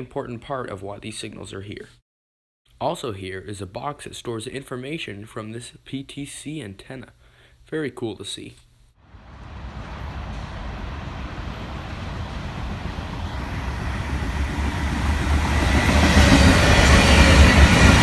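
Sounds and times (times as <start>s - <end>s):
diesel locomotive rumble: 9.1s - 18.0s
rail noise: 9.1s - 18.0s.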